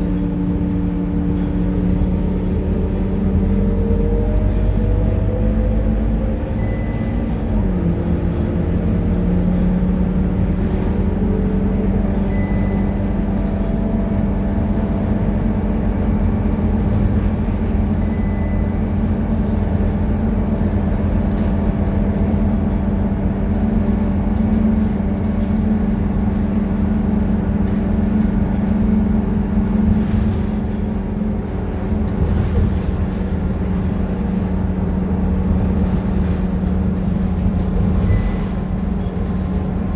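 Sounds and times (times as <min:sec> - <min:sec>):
bus diesel engine running: 0:00.0 - 0:39.9
short high electronic beeps: 0:06.6 - 0:07.4, 0:12.3 - 0:13.1, 0:18.0 - 0:18.8, 0:38.1 - 0:38.7.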